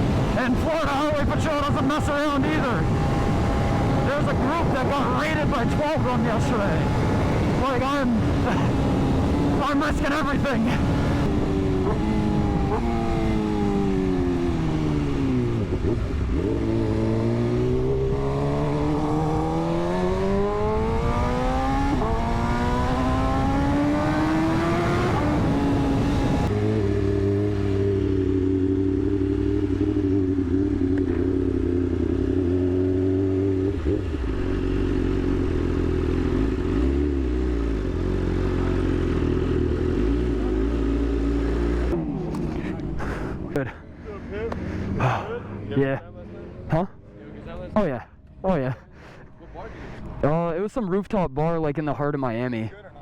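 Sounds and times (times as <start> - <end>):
wind rush: 0.0 - 9.6
motorcycle engine accelerating: 0.0 - 48.7.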